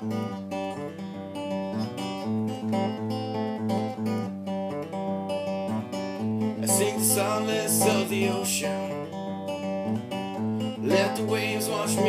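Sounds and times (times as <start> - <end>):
acoustic guitar strumming: 0.0 - 12.0
person singing: 6.5 - 9.2, 10.8 - 12.0.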